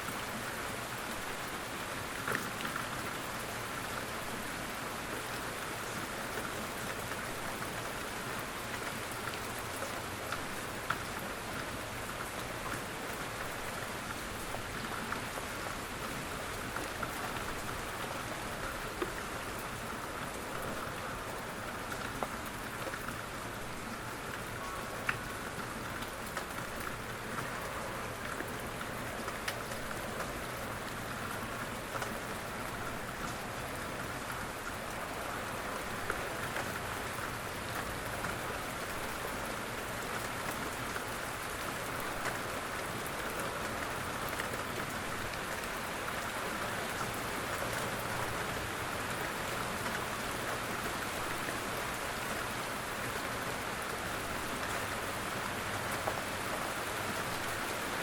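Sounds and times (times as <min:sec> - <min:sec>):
gentle rain hiss: 0:00.0 - 0:58.0
raindrop ticks: 0:08.6 - 0:15.3, 0:16.5 - 0:23.2, 0:24.3 - 0:48.4.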